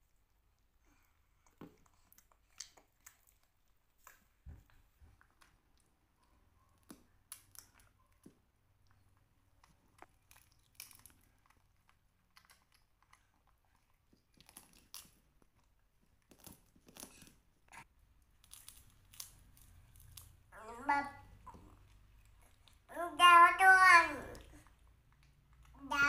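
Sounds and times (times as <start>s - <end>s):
crunching of crispy snack: 9.6s - 17.4s, 18.2s - 20.5s.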